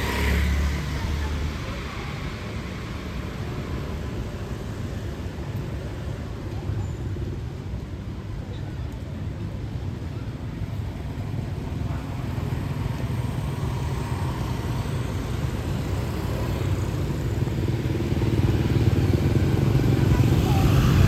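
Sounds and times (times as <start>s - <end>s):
motorbike engine hum: 11.0s - 21.0s.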